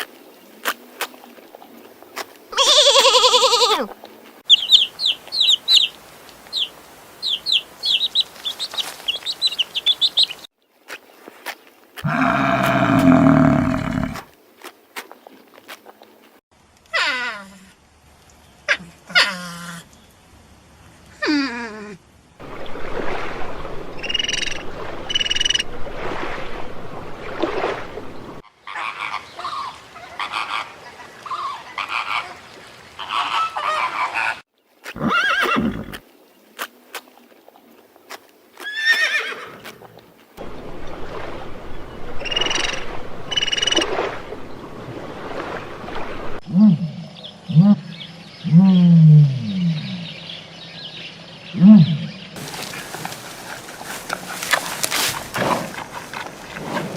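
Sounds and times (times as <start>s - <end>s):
animal calls: 12.0s - 14.2s.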